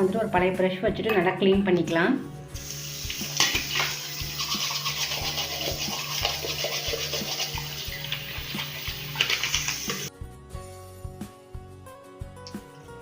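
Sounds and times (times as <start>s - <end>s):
brush scrubbing plastic filter: 3.8s - 10.1s.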